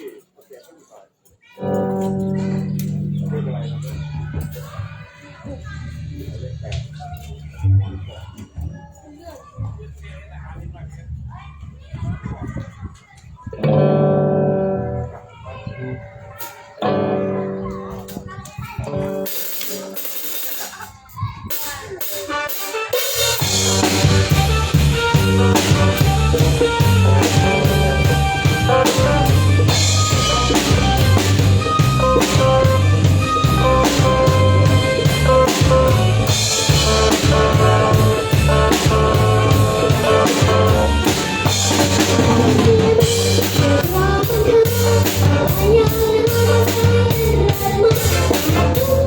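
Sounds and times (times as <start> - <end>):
live band playing instrumental: 1.6 - 8.6, 16.4 - 49.0.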